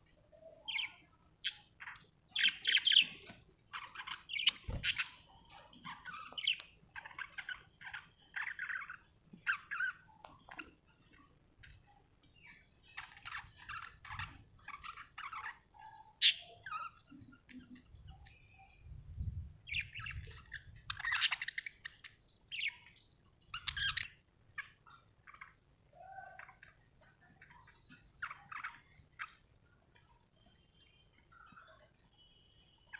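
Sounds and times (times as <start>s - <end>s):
budgerigars chirping: 0.7s - 5.2s, 19.7s - 22.9s, 23.5s - 25.5s.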